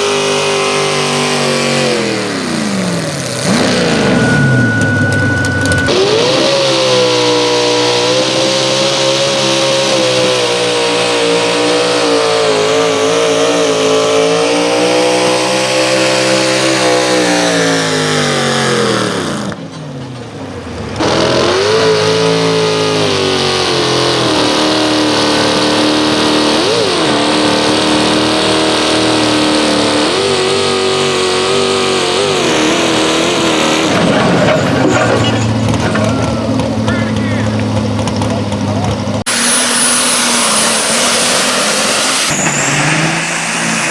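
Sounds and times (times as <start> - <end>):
pulling engine running hard: 0.0 - 43.9.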